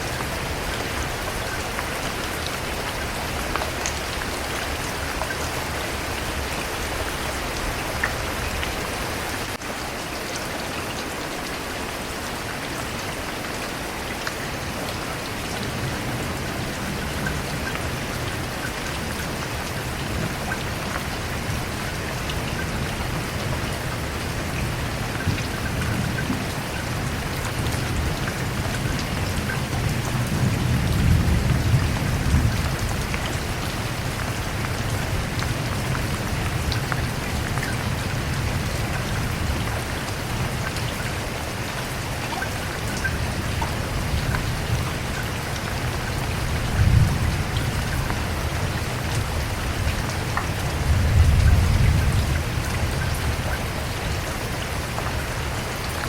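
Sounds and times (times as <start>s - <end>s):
steady rain falling: 0.0s - 56.0s
low rolling thunder: 22.4s - 39.6s, 46.2s - 54.2s.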